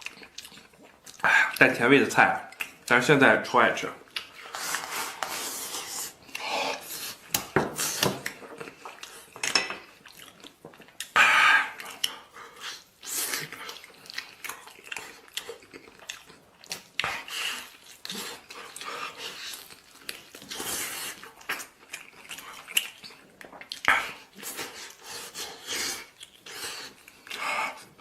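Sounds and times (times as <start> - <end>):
person chewing: 0.0 - 1.8, 2.4 - 2.9, 4.0 - 28.0.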